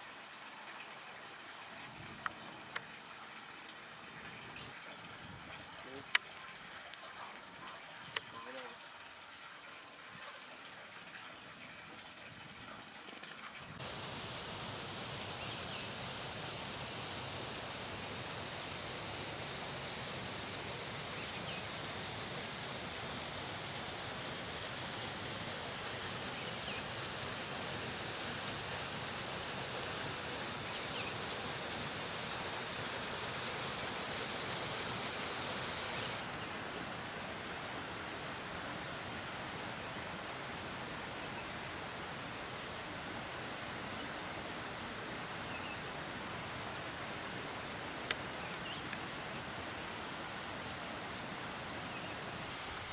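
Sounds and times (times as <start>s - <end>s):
outdoor background noise: 0.0s - 52.9s
high-pitched whine: 13.8s - 52.9s.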